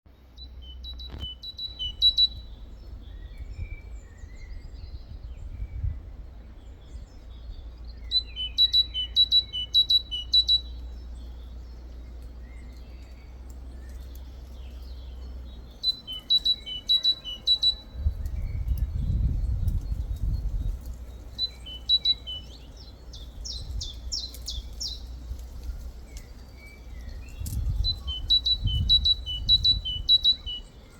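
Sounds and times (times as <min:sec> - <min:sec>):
low rumble: 0:00.1 - 0:09.2, 0:17.5 - 0:30.1
faint bird chirps: 0:00.1 - 0:30.9
steady low hum: 0:00.1 - 0:30.9.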